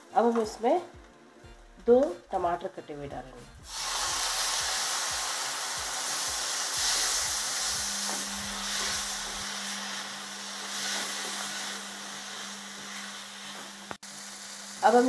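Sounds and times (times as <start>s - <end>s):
tomatoes sizzling in oil: 3.6s - 15.0s
low steady hum: 6.8s - 13.4s.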